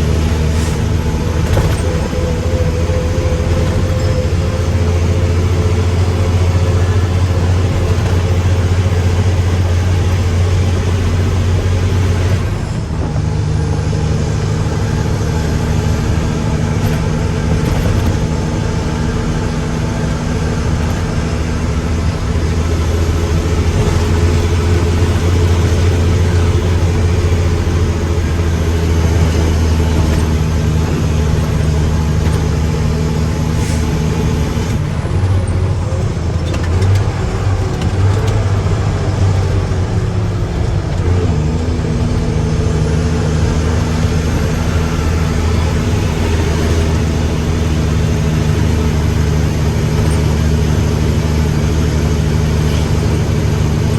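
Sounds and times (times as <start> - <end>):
truck diesel engine running: 0.0 - 53.9.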